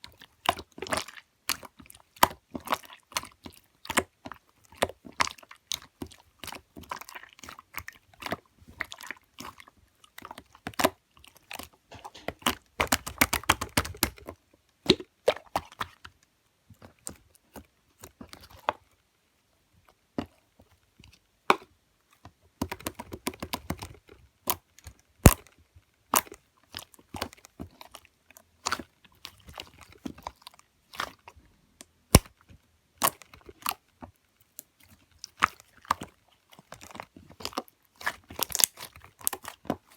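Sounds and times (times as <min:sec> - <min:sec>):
slime clicking and popping: 0:32.1 - 0:32.4, 0:37.4 - 0:39.7.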